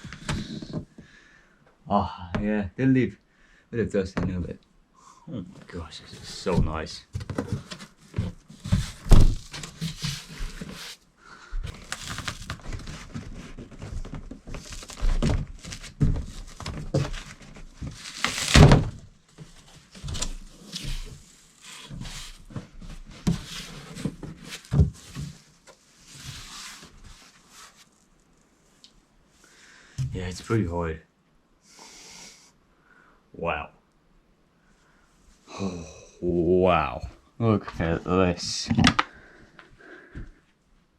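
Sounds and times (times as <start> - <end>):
cardboard rustling and scraping: 5.7 - 11.0, 11.6 - 28.1.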